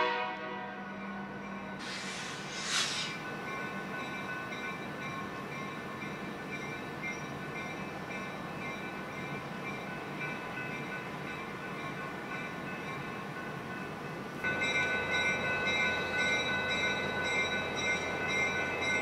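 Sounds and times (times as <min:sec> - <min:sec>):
distant train hum: 0:00.5 - 0:10.3
brief hiss: 0:01.8 - 0:03.3.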